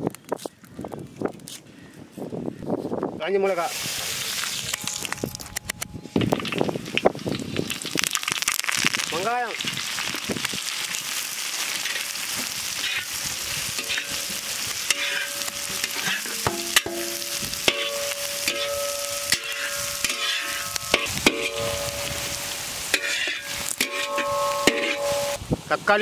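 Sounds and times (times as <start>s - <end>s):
onions sizzling in hot oil: 6.2s - 26.0s
metal spatula scraping pan: 12.8s - 13.1s, 13.7s - 25.4s
ringing metal tones: 13.8s - 25.4s.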